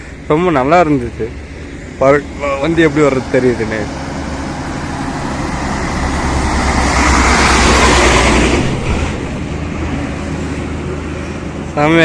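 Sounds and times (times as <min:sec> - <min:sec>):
low engine hum: 0:00.0 - 0:12.0
vehicle passing by: 0:02.2 - 0:12.0.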